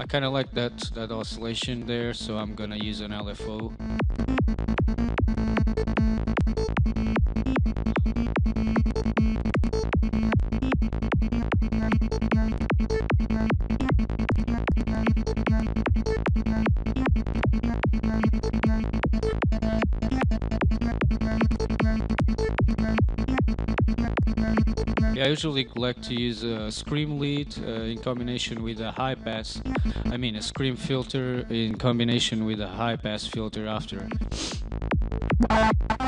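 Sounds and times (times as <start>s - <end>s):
steady low bass note: 0.0s - 32.2s, 32.9s - 36.0s
synthesizer lead sequence: 35.0s - 36.0s.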